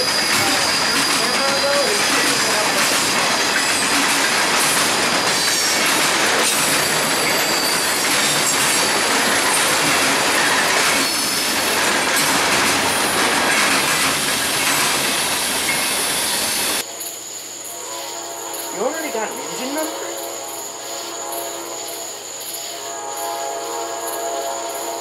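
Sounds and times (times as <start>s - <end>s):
high-pitched wheel squeals: 0.0s - 4.0s, 6.4s - 9.3s
train wheels rumbling on rail: 0.0s - 25.0s.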